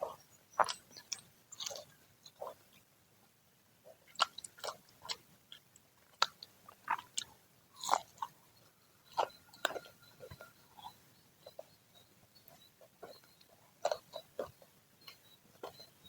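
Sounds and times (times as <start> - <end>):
wet chewing: 0.0 - 2.6, 3.9 - 11.8, 12.4 - 16.0
crunching fried snacks: 1.5 - 2.4, 4.1 - 8.3.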